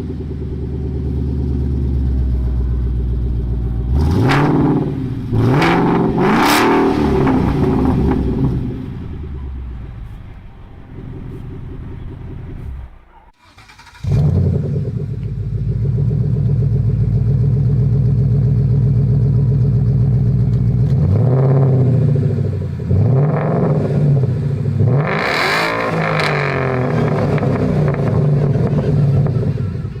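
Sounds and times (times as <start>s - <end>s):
car exhaust idling: 0.0s - 30.0s
engine throttle blips: 0.0s - 30.0s.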